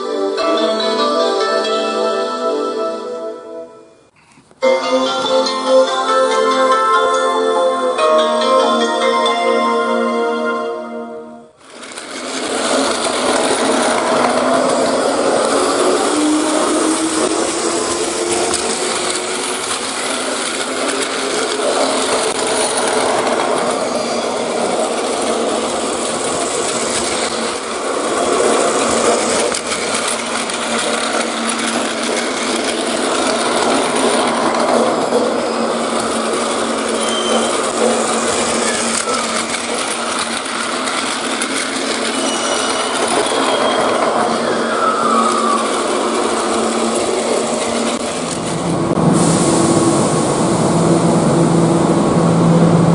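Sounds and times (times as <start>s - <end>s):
toy trains whirring on plastic track: 11.6s - 48.5s.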